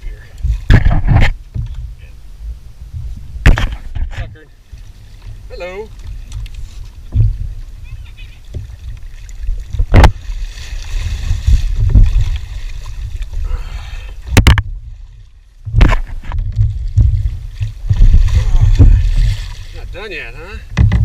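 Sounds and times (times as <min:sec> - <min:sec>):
wind rumble on microphone: 0:00.0 - 0:20.0, 0:20.6 - 0:21.0
knocks against kayak hull: 0:00.4 - 0:01.9, 0:03.4 - 0:04.2, 0:07.1 - 0:07.6, 0:09.8 - 0:10.2, 0:14.3 - 0:14.7, 0:15.7 - 0:19.4, 0:20.7 - 0:21.0
water splashing: 0:03.4 - 0:21.0.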